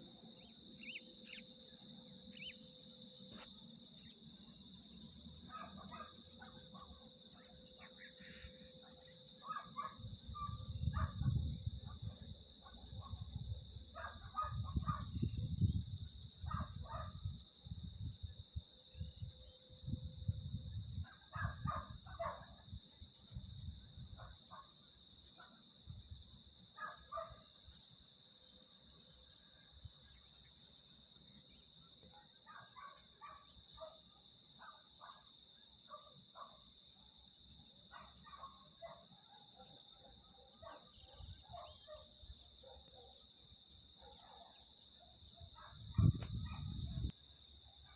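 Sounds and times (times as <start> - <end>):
insects chorus: 0.0 - 47.9
bird calls: 0.4 - 2.6.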